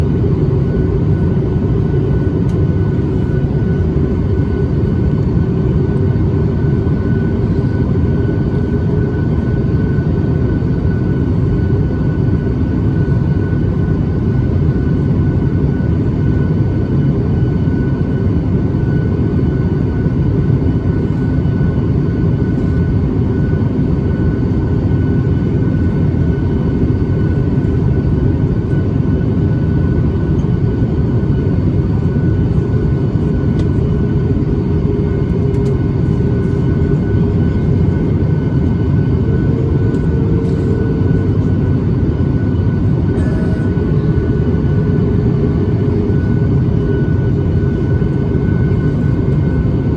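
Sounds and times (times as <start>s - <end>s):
aircraft cabin roar: 0.0s - 49.9s
thin high whine: 30.6s - 44.8s.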